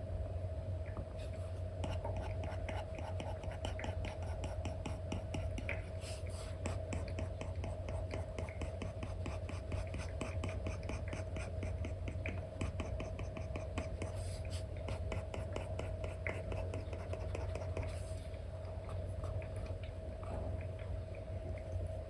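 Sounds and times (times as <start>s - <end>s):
steady low hum: 0.0s - 22.0s
stylus tapping and scratching on screen: 1.2s - 18.1s.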